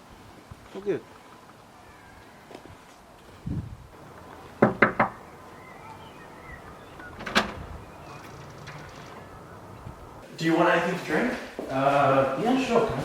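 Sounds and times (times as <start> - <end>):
quick sharp knocks: 4.0 - 5.7
dull thump: 4.0 - 10.2.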